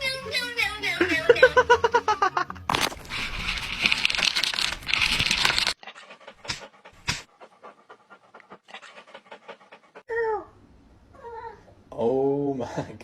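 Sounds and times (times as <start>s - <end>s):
dog panting: 5.5s - 10.1s.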